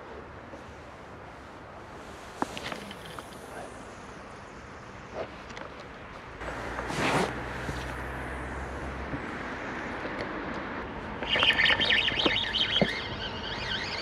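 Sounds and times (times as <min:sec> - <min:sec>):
bird chirping: 0:11.2 - 0:14.0.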